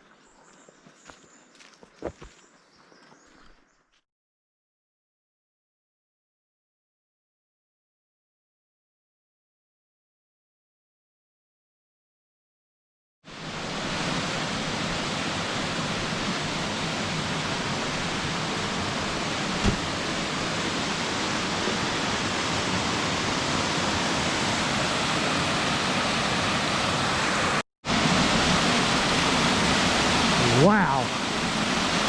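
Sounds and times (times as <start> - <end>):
small waterfall rushing: 13.3 - 32.0
short knock: 19.6 - 19.9.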